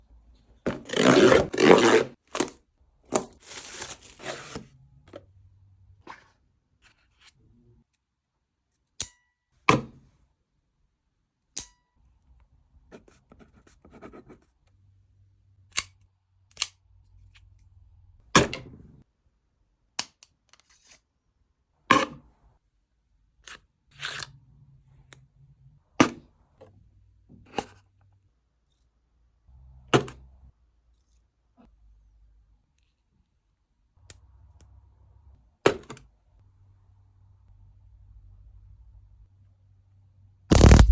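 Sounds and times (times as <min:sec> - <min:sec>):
packaging tearing and rustling: 0:03.1 - 0:04.6, 0:40.5 - 0:40.9.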